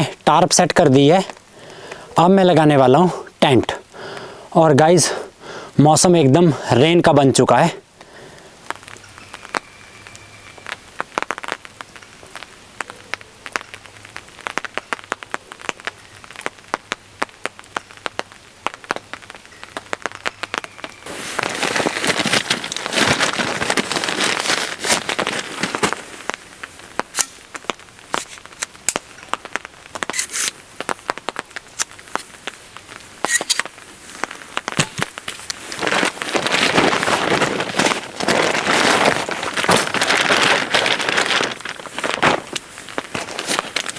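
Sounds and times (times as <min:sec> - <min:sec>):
raindrops pattering on a tarp: 0:00.0 - 0:43.9
rustling noise: 0:19.9 - 0:43.9.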